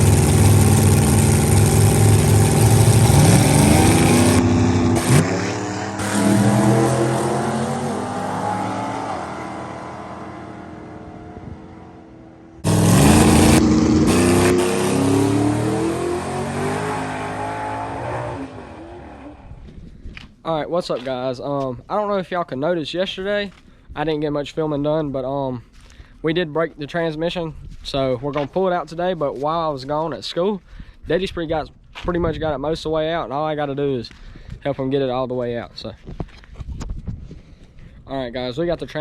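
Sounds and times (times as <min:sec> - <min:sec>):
drag truck engine revving: 0:00.0 - 0:19.5.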